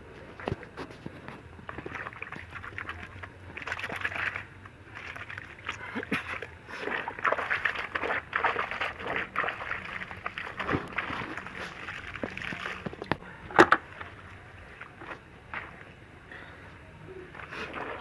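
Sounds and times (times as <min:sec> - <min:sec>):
clothes sloshing in soapy water: 0:00.3 - 0:13.2, 0:17.3 - 0:18.0.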